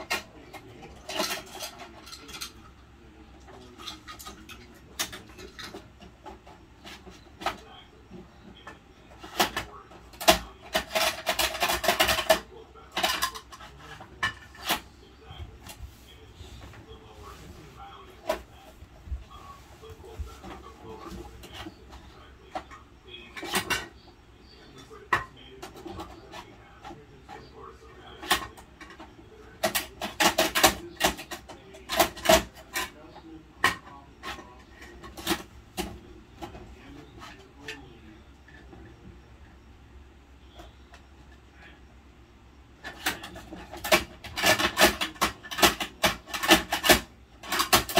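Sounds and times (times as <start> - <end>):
plastic toys clattering and scraping: 0.0 - 39.6, 42.7 - 47.9
plastic toy clicks and knocks: 8.6 - 14.8, 28.0 - 33.0, 42.8 - 47.9.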